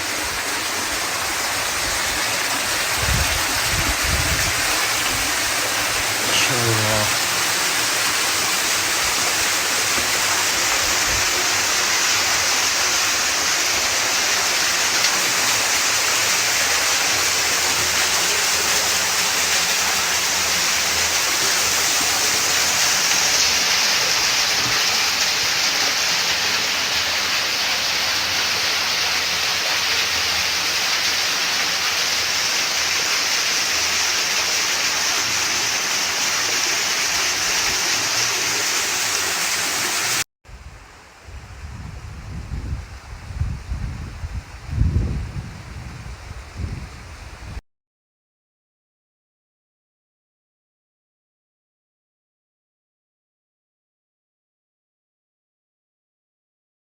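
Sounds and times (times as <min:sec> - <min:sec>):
water rushing in stream: 0:00.0 - 0:40.2.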